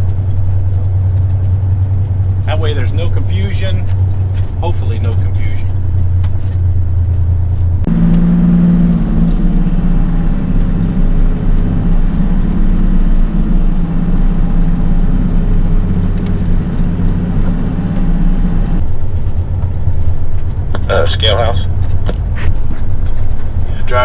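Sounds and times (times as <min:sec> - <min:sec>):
diesel truck engine under load: 0:07.9 - 0:18.8.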